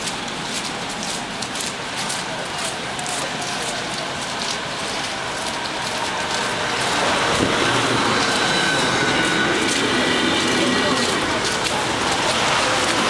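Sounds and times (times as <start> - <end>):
electric train running: 3.0 - 13.0.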